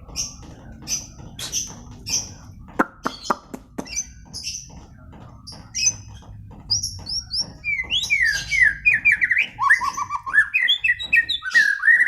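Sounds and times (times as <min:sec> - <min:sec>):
bird singing whistled notes: 0:07.6 - 0:12.0.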